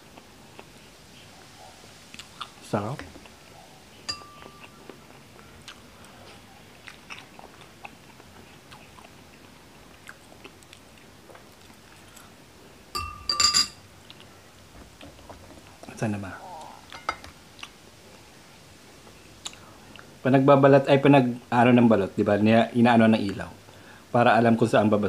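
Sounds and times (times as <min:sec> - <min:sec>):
person chewing: 0:00.0 - 0:00.8, 0:02.1 - 0:03.4, 0:04.0 - 0:12.4, 0:14.0 - 0:14.4, 0:16.5 - 0:17.8
spoon clinking on plate: 0:04.1 - 0:04.7, 0:12.9 - 0:13.8, 0:16.9 - 0:17.3.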